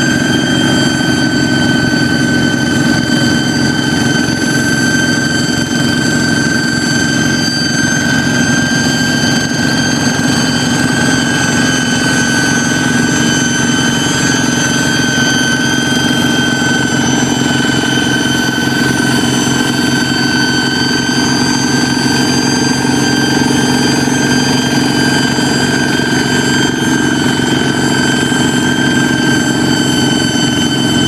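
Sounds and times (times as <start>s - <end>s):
diesel engine running: 0.0s - 31.0s
high steady whistle: 0.0s - 31.0s.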